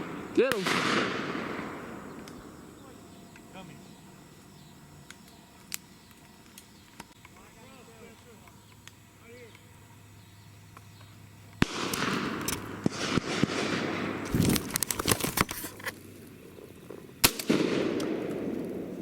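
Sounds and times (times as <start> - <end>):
shotgun shots: 0.0 - 3.7, 11.6 - 15.1, 17.2 - 19.0.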